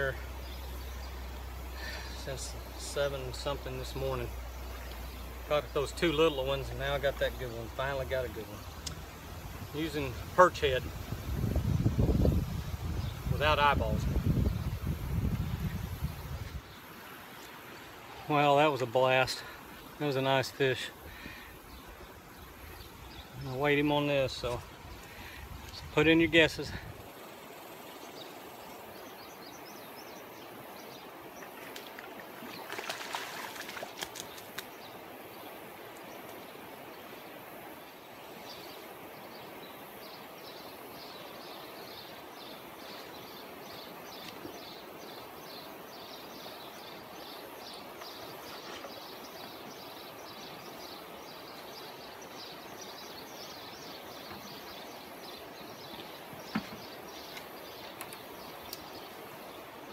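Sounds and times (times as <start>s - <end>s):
flowing water rush: 0.0s - 59.9s.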